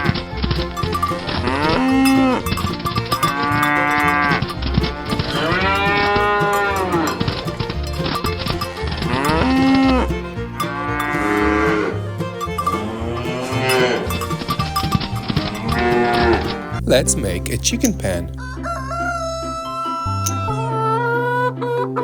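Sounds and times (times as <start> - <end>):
cows mooing: 1.4 - 7.3, 10.6 - 11.9, 12.6 - 16.8.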